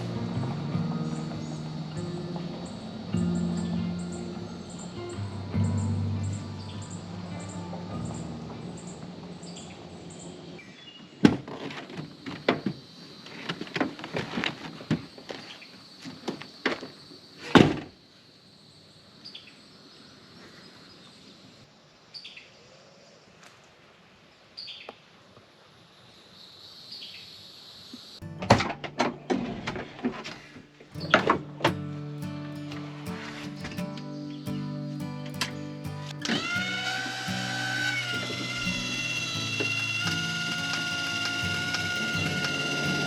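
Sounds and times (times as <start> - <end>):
high insect drone: 26.0 - 43.0
bird chirps: 29.1 - 43.0.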